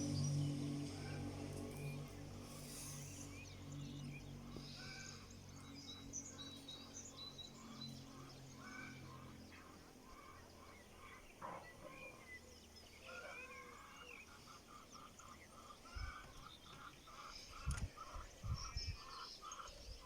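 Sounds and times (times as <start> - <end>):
low steady hum: 0.0 - 19.0
small birds chirping: 0.0 - 20.0.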